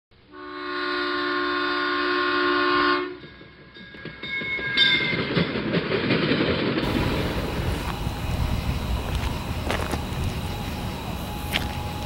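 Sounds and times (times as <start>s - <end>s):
locomotive air horn: 0.3s - 3.2s, 6.8s - 12.0s
train passing with rumble and clatter: 0.5s - 12.0s.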